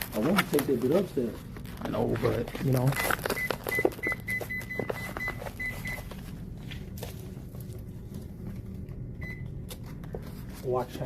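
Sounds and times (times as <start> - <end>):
steady low hum: 0.0 - 11.0
microwave keypad beeps: 3.4 - 6.0, 9.2 - 9.5.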